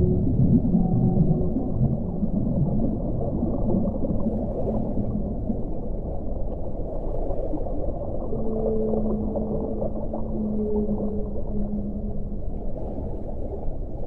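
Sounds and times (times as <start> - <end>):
muffled underwater rumble with gurgling: 0.0 - 14.0.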